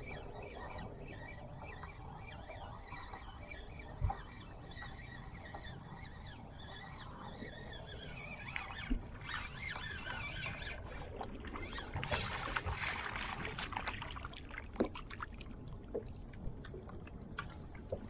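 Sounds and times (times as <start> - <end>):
wind rumble on microphone: 0.0 - 18.0
water splashing around kayak: 8.4 - 18.0.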